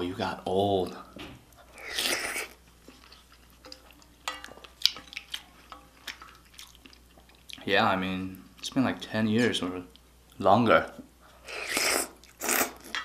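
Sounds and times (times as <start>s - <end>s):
utensils clinking against a bowl: 2.9s - 6.6s.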